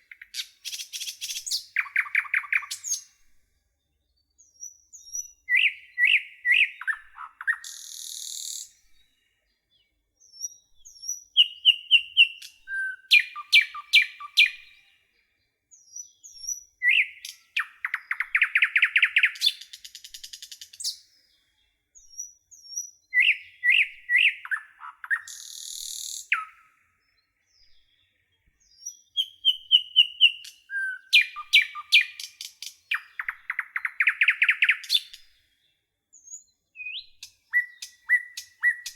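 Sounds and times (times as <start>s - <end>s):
nightingale singing: 0.0s - 38.9s.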